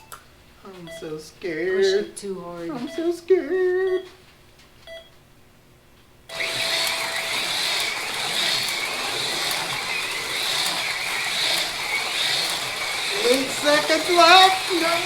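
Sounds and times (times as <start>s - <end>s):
slot car motors whining: 6.3s - 15.0s.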